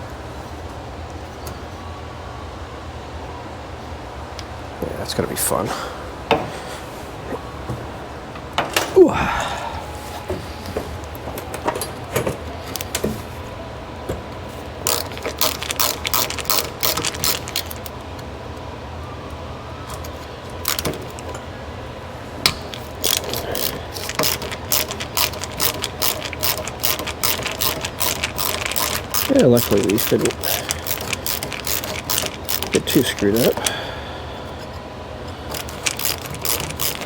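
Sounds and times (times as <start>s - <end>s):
steady low hum: 0.0s - 37.0s
hand ratchet clicking: 14.8s - 17.9s, 20.0s - 21.4s, 22.5s - 33.8s, 35.4s - 37.0s.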